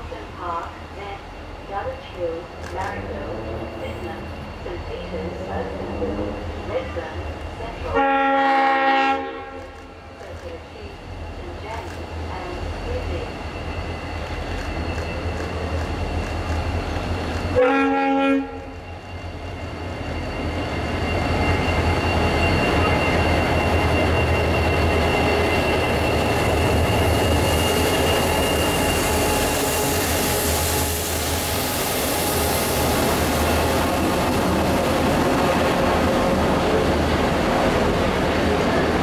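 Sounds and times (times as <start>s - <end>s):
diesel locomotive engines running: 0.0s - 39.0s
locomotive horn blast: 7.9s - 9.8s, 17.6s - 18.7s.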